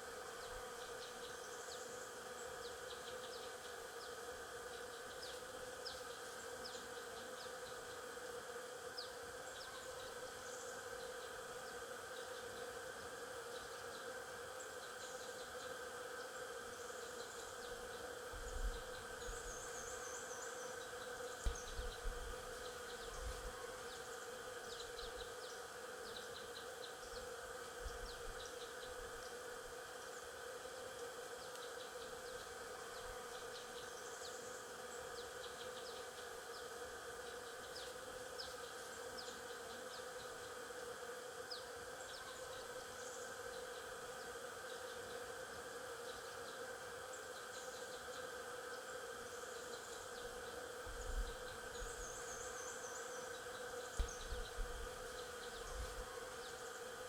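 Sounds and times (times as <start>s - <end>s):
bees buzzing: 10.1s - 35.6s, 38.2s - 57.0s.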